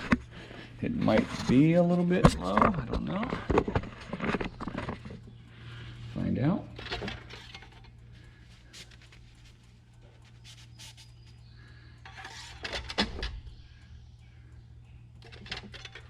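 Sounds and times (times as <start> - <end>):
dipstick rubbing: 8.6 - 12.7.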